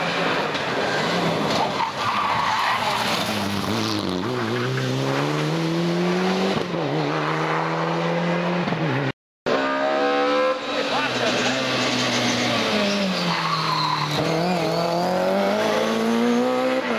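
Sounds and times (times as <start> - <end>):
tyres squealing: 11.1 - 14.8
rally car engine accelerating: 14.1 - 16.9.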